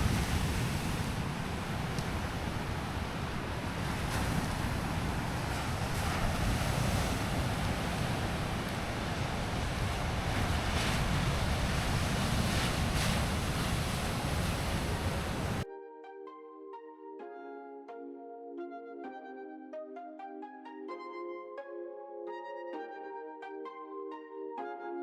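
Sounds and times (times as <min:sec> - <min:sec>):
sea surf washing onto shore: 0:00.0 - 0:15.6
wind buffeting microphone: 0:00.0 - 0:15.6.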